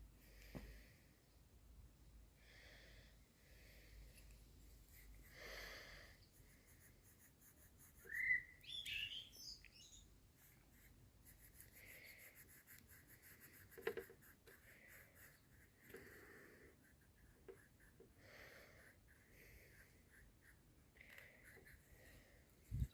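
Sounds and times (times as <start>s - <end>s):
rising whistled call: 8.1s - 10.0s.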